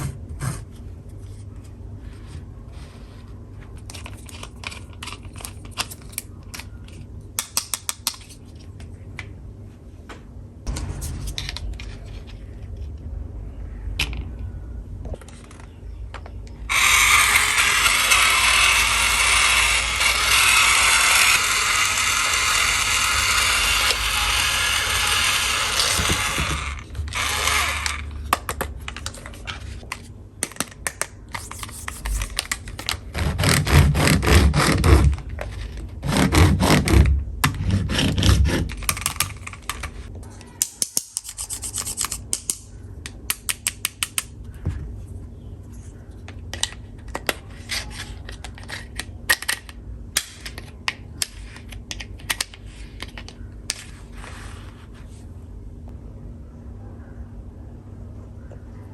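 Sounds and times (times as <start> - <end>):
scratchy rubbing of toy saw: 16.7 - 28.1, 33.1 - 35.2, 36.0 - 38.8.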